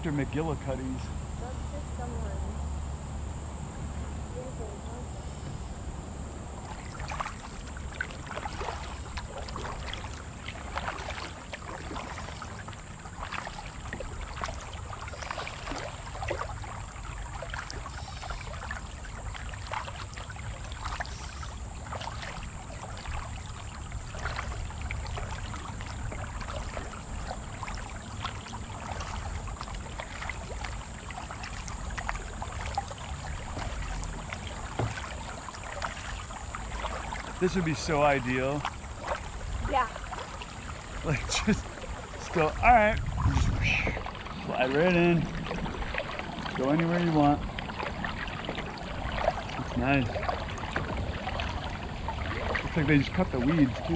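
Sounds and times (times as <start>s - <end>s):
paddle splashes: 4.3s - 53.9s
low rumble: 41.0s - 46.5s.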